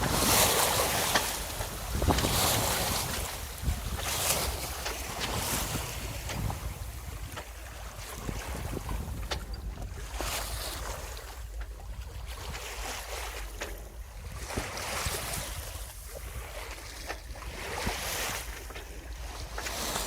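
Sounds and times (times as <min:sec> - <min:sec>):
wind buffeting microphone: 0:00.0 - 0:11.2
water splashing along hull: 0:00.0 - 0:20.0.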